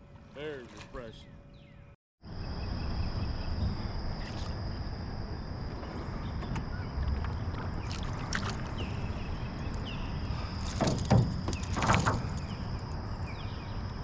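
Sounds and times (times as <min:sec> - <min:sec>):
insect drone: 0:02.2 - 0:14.0
water splashing: 0:07.4 - 0:09.2
river rumble: 0:07.4 - 0:13.3.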